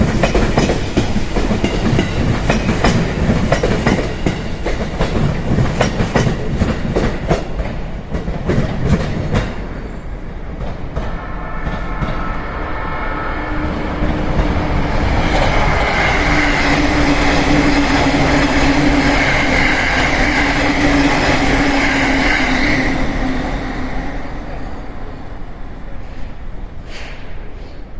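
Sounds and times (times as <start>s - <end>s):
train clickety-clack over rail joints: 0.0s - 12.2s, 14.0s - 23.9s
train rumble: 0.0s - 27.9s
electric train whine: 9.6s - 26.9s.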